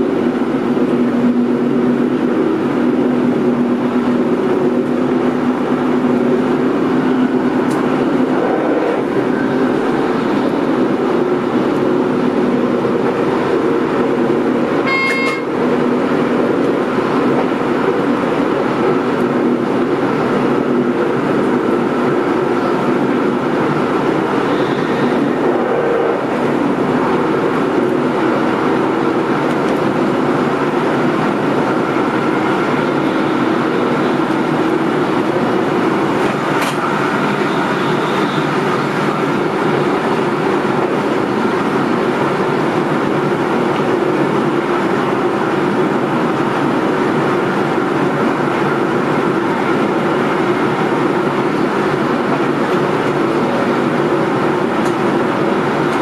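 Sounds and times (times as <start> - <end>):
train wheels rumbling on track: 0.0 - 56.0
short high-pitched beep: 14.9 - 15.5.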